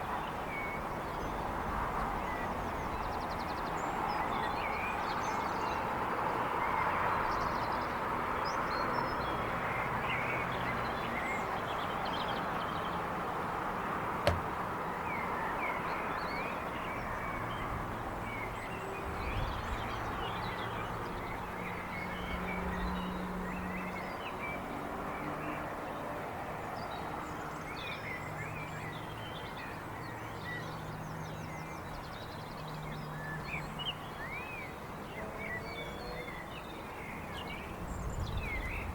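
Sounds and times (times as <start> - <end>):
distant traffic: 8.8 - 38.9
sharp bang: 14.2 - 14.6.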